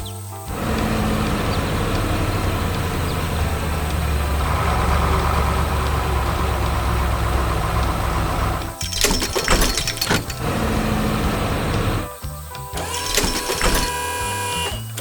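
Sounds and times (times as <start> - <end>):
heavy vehicle engine running: 0.5 - 12.1, 12.8 - 14.0.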